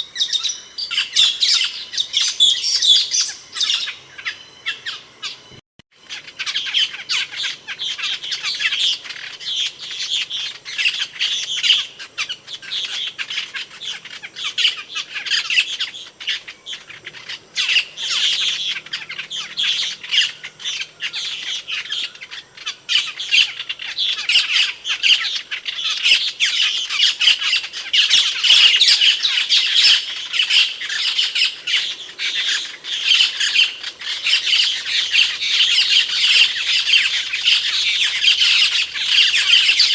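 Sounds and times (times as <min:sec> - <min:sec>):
starling calling: 0:00.0 - 0:39.9.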